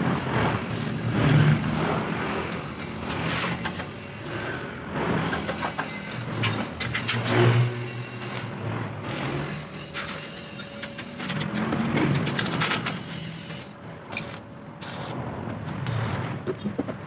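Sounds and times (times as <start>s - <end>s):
jigsaw cutting metal: 0.2s - 13.7s.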